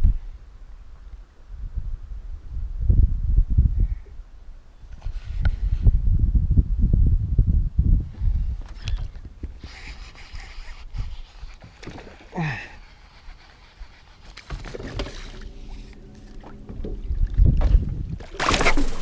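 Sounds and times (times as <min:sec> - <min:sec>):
water noise: 0:09.6 - 0:19.0.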